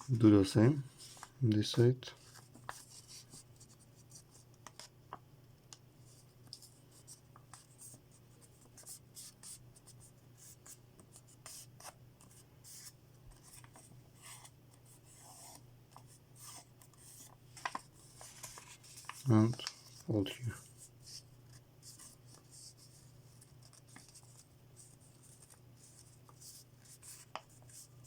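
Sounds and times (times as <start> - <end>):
paper rustling while folded: 11.5 - 28.0.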